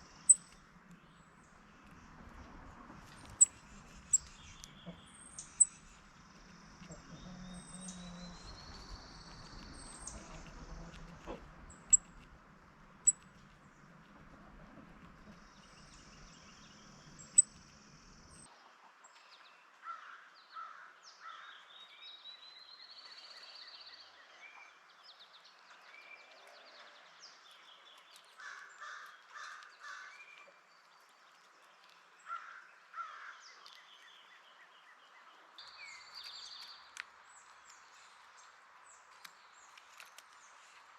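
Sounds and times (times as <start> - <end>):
birds singing: 3.3 - 12.1, 15.2 - 18.5
harsh caw-like bird calls: 19.8 - 21.5, 28.4 - 30.2, 32.3 - 33.4.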